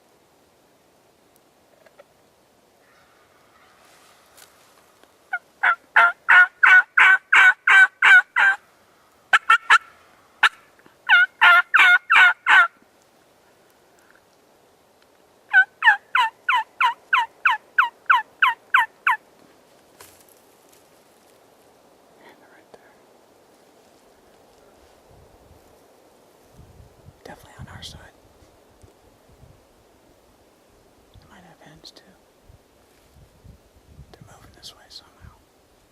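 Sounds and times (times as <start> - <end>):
turkey yelping: 5.3 - 8.6, 9.3 - 12.7, 15.5 - 19.2.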